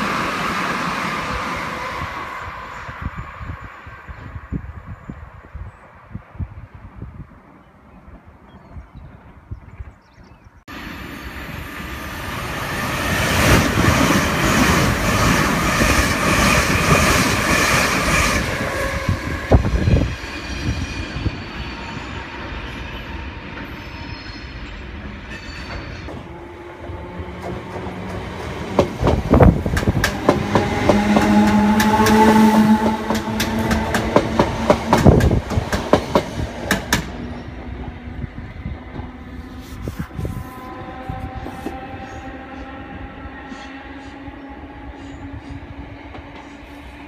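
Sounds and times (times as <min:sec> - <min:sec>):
electric train hum with rising tones: 0:00.0 - 0:06.9, 0:10.7 - 0:47.0
train rumble: 0:10.7 - 0:23.8, 0:24.8 - 0:47.0
train wheels clattering over rail joints: 0:25.3 - 0:37.3.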